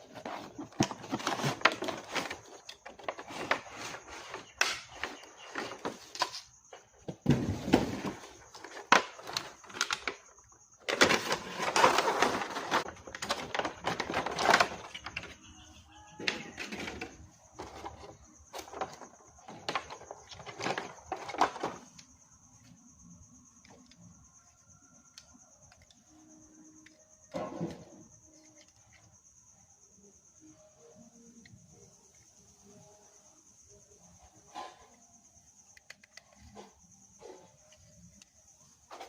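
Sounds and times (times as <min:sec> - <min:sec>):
packaging rustling and clicking: 0:00.0 - 0:06.4, 0:07.7 - 0:15.4
faint steady high tone: 0:22.3 - 0:35.9.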